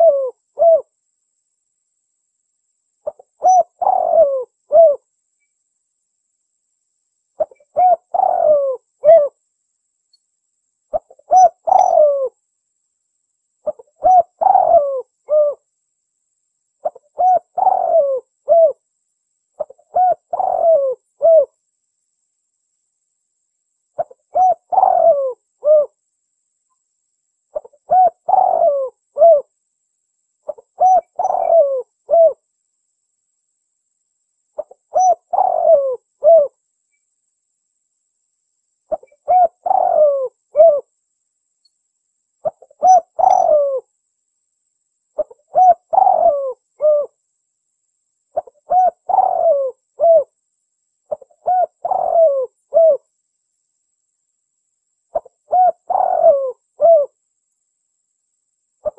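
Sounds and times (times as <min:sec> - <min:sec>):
dove cooing: 0:00.0 - 0:00.9, 0:03.0 - 0:05.1, 0:07.4 - 0:09.4, 0:10.9 - 0:12.4, 0:13.6 - 0:15.6, 0:16.8 - 0:18.8, 0:19.6 - 0:21.6, 0:24.0 - 0:26.0, 0:27.5 - 0:29.5, 0:30.5 - 0:32.4, 0:34.6 - 0:36.6, 0:38.9 - 0:40.9, 0:42.4 - 0:43.9, 0:45.2 - 0:47.2, 0:48.4 - 0:50.3, 0:51.1 - 0:53.1, 0:55.1 - 0:57.2.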